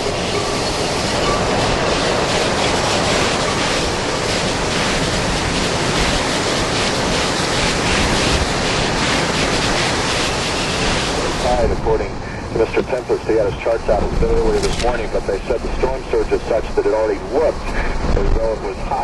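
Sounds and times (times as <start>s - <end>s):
loud rushing hurricane wind: 0.0s - 19.0s.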